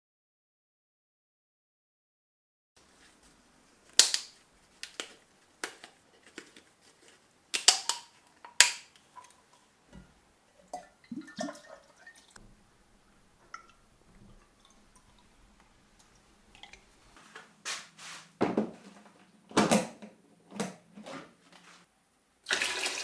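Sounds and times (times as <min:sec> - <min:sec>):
handling and rustling: 0:02.8 - 0:09.6.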